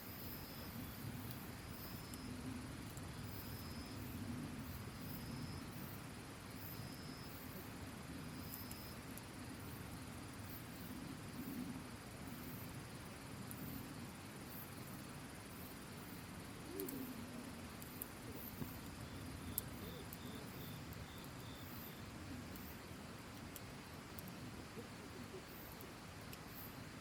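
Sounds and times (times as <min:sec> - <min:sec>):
insects chirping: 0:00.0 - 0:27.0
campfire burning with pops: 0:00.2 - 0:04.1, 0:12.1 - 0:27.0
lower chirping call: 0:19.1 - 0:22.1.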